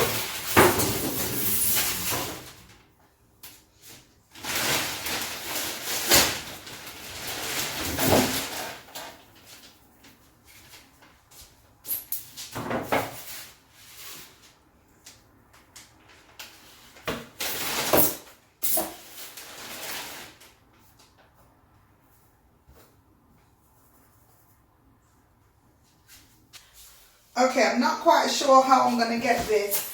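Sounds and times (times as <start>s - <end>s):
packaging scraping and rustling: 4.4s - 9.7s, 18.9s - 20.6s.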